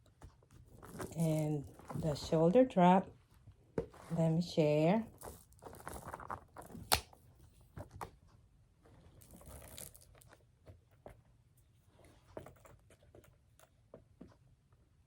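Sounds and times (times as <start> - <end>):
bag rustling: 0.5 - 2.5, 3.7 - 6.9, 9.1 - 10.2.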